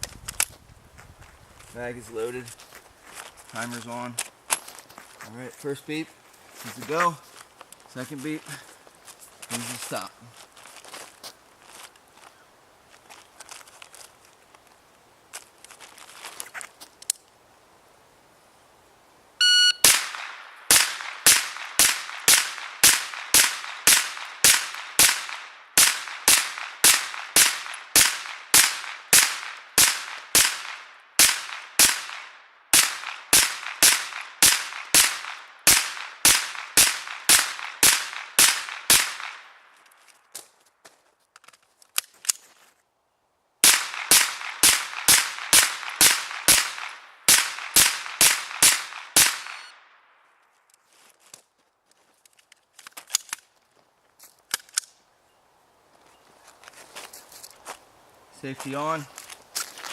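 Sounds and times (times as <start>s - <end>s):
shot timer beep: 19.4s - 19.9s
rapid semi-automatic gunfire: 19.9s - 39.4s.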